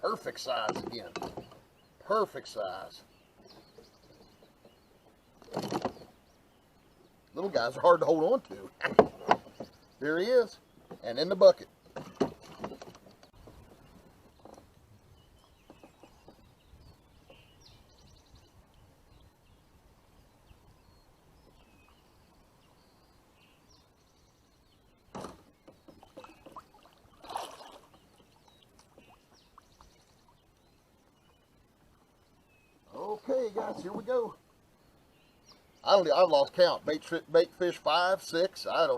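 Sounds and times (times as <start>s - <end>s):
faint bird chirps: 12.4s - 36.1s.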